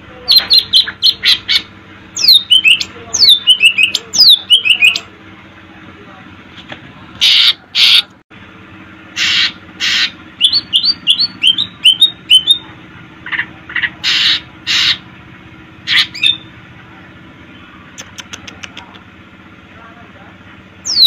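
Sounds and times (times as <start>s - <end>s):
bird harsh rasping notes: 0.3s - 5.1s, 7.2s - 8.1s, 9.1s - 15.2s, 15.8s - 16.6s.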